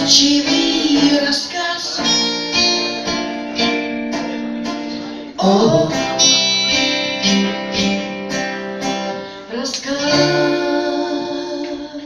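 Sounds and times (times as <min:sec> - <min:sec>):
woman singing: 0:00.0 - 0:02.4, 0:05.4 - 0:06.4, 0:09.5 - 0:12.0
guitar strummed: 0:00.0 - 0:12.0.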